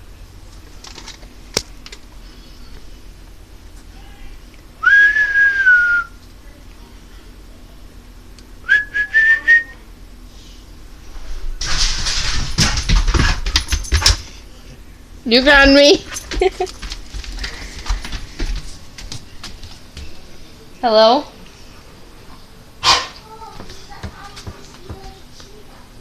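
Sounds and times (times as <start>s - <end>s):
rustling and clattering: 0.5s - 2.2s, 11.1s - 14.5s, 15.5s - 20.2s
person whistling: 4.8s - 6.2s, 8.7s - 9.8s.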